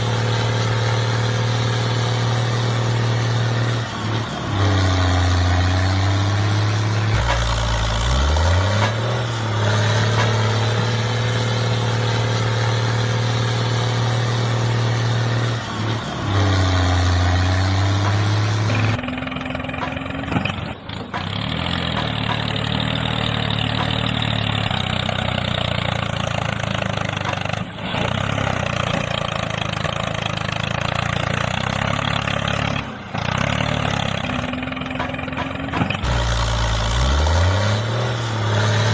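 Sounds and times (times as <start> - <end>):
motor humming: 7.1 - 11.0, 17.9 - 30.5, 33.8 - 36.5.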